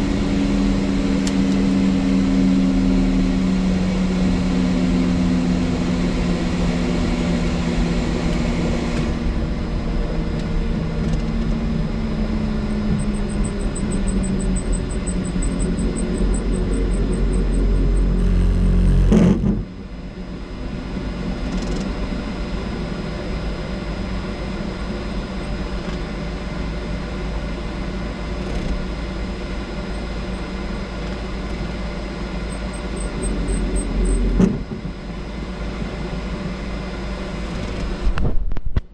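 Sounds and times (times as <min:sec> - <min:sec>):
helicopter engine and rotor: 0:00.0 - 0:38.0.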